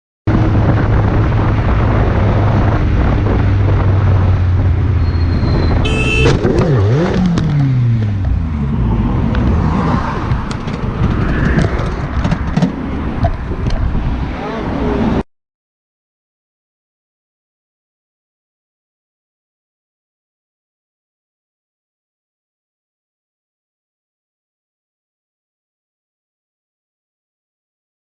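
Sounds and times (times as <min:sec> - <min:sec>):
car engine and tyre noise: 0:00.3 - 0:15.2
brief high tone: 0:05.0 - 0:06.3.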